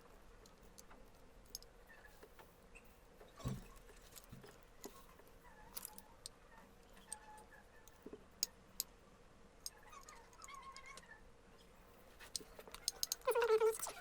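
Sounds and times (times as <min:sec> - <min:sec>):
small metal parts clicking: 0:00.4 - 0:01.7, 0:05.7 - 0:06.3, 0:09.6 - 0:11.0, 0:12.3 - 0:14.0.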